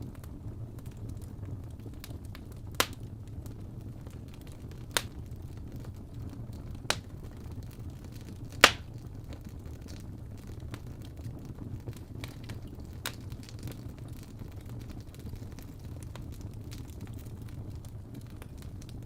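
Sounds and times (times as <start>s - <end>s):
faint fire crackles: 0.0s - 19.0s
fire burning with low rumble: 0.0s - 19.0s
fire popping sharply: 8.5s - 9.2s.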